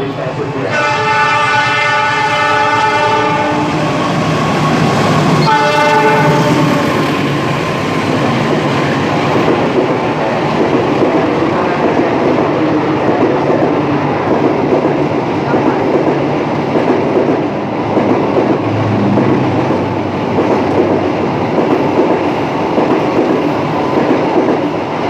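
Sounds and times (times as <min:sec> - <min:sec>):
train horn blasts: 0:00.0 - 0:04.0, 0:05.4 - 0:07.0
train rumbling on rails: 0:00.0 - 0:25.0.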